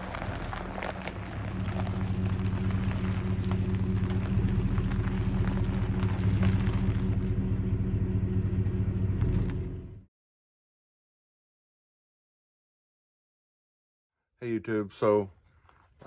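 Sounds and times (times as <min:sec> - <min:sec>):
small rattles and clicks: 0:00.0 - 0:07.3
truck engine and road noise: 0:00.0 - 0:10.1.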